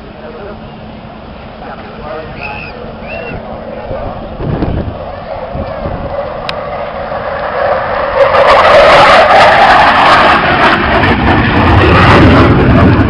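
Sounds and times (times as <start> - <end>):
jet aircraft flying past: 0.0 - 13.0
deep rumble: 1.2 - 13.0.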